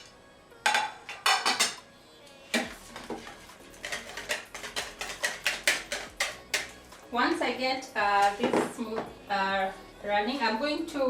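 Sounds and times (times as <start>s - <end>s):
utensil beating batter in bowl: 2.6s - 6.7s.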